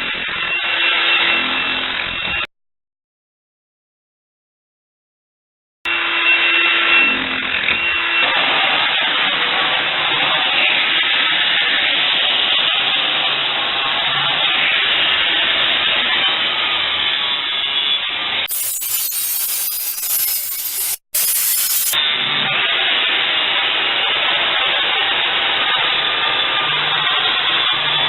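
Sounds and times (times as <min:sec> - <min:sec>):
saw cutting: 0:18.5 - 0:22.0.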